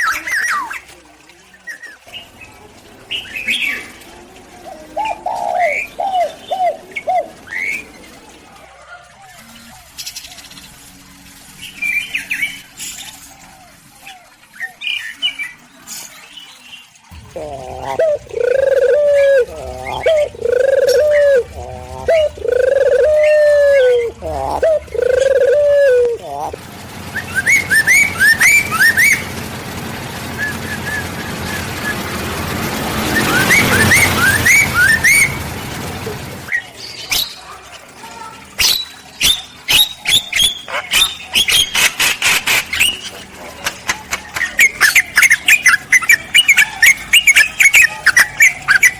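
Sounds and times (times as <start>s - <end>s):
birds chirping and whistling: 0.0s - 8.4s, 9.3s - 48.9s
soft low bird calls: 17.1s - 32.2s.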